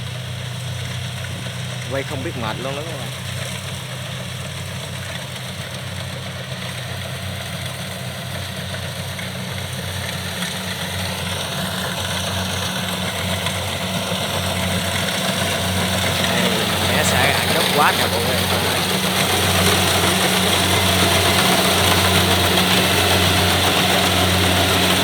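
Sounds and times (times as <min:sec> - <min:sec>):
diesel engine drone: 0:00.1 - 0:05.5, 0:10.7 - 0:25.0.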